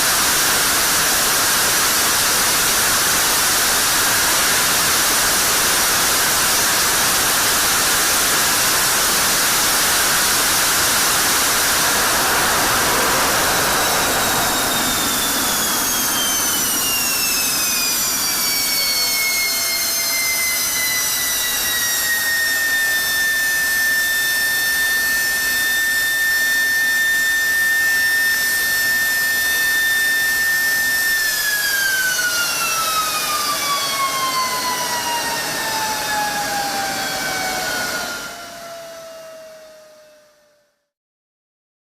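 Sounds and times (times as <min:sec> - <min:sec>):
jet engine roaring: 0:00.0 - 0:40.0
turbine whine falling in pitch: 0:00.0 - 0:41.0.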